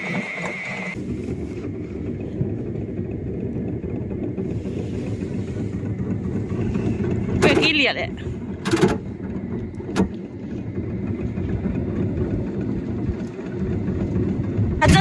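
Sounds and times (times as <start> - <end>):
thin high whine: 0.0 - 1.0
boat motor and water rumble: 0.0 - 15.0.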